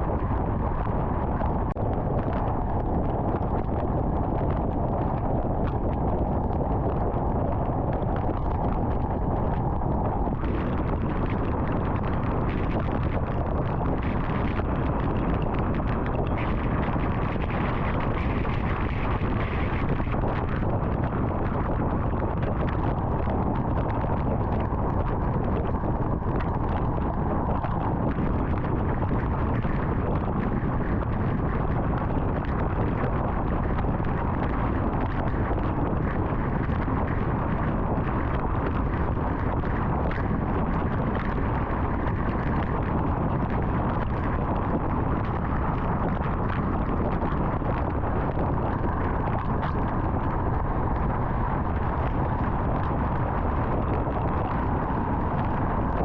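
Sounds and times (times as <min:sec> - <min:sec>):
tyre and wind noise: 0:00.0 - 0:56.0.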